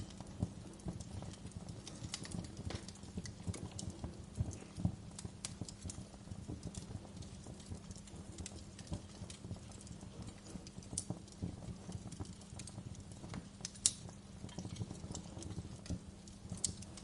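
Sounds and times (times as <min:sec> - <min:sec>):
fire crackling: 0:00.0 - 0:17.0.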